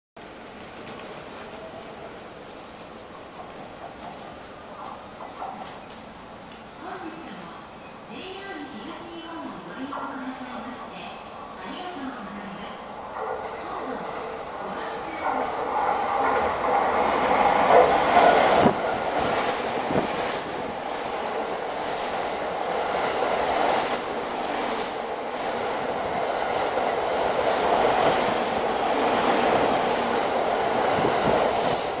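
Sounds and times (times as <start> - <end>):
train wheels rushing on rails: 13.1 - 32.0.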